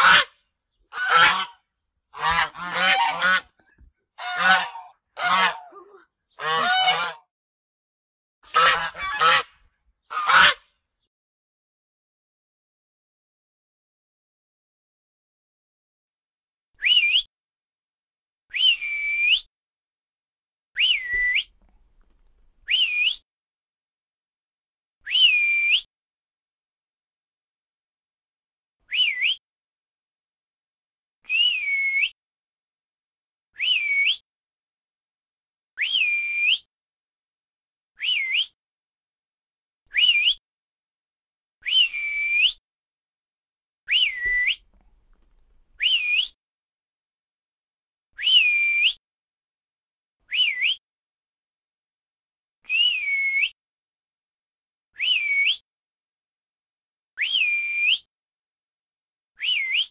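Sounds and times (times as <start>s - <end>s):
whistle calling: 16.8s - 17.3s, 18.5s - 19.5s, 20.8s - 21.5s, 22.7s - 23.2s, 25.1s - 25.9s, 28.9s - 29.4s, 31.3s - 32.2s, 33.6s - 34.2s, 35.8s - 36.7s, 38.0s - 38.6s, 39.9s - 40.4s, 41.6s - 42.6s, 43.9s - 44.6s, 45.8s - 46.4s, 48.2s - 49.0s, 50.3s - 50.8s, 52.7s - 53.6s, 55.0s - 55.6s, 57.2s - 58.1s, 59.4s - 59.9s.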